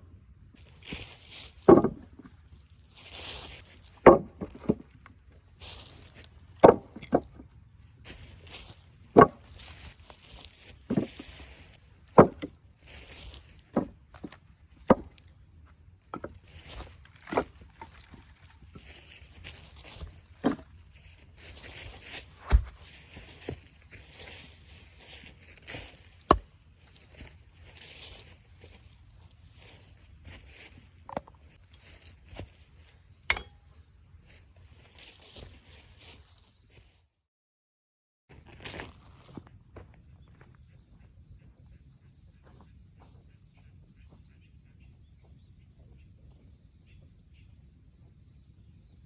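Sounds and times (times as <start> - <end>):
wood rustling and crackling: 0.7 - 29.0, 29.6 - 32.9
axe splitting firewood: 1.6 - 2.3, 4.0 - 5.0, 6.5 - 7.5, 9.1 - 9.9, 10.8 - 11.3, 12.1 - 12.6, 13.7 - 15.2, 16.1 - 19.0, 19.9 - 20.9, 21.8 - 23.6, 25.7 - 26.6, 33.3 - 33.7.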